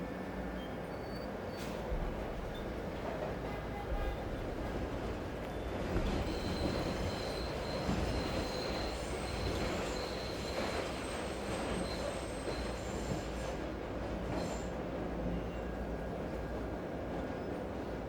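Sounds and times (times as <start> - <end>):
train rumbling on rails: 0.0 - 18.0
high wheel squeal: 6.2 - 13.5.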